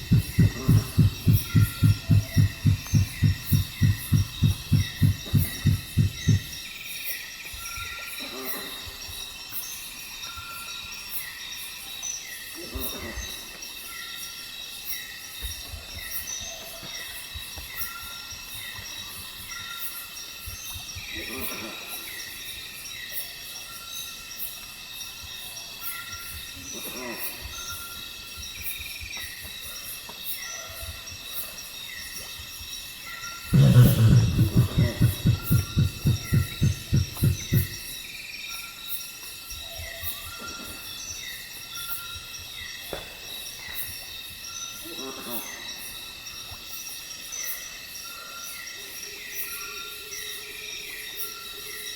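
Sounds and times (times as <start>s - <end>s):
animal thumping grunts: 0.0s - 6.6s, 33.5s - 37.9s
insects chorus: 0.0s - 51.9s.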